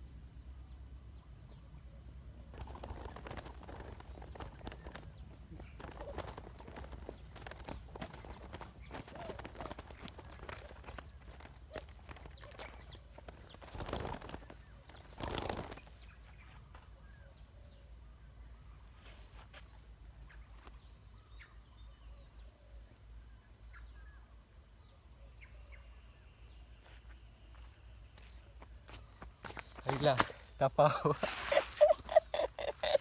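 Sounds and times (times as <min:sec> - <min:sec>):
faint bird chirps: 0:00.0 - 0:33.0
clicking and rustling: 0:02.6 - 0:15.9.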